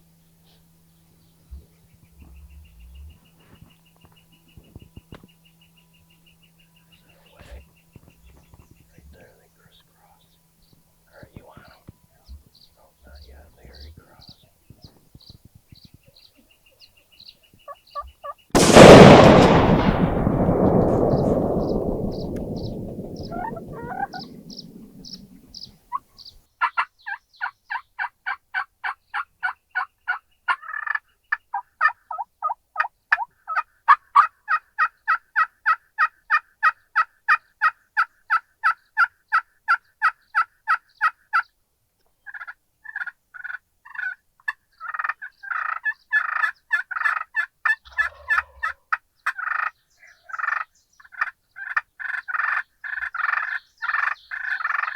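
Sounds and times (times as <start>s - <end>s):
shotgun blast echoing: 18.6s - 25.6s
turkey calling: 23.3s - 25.6s, 44.8s - 49.7s.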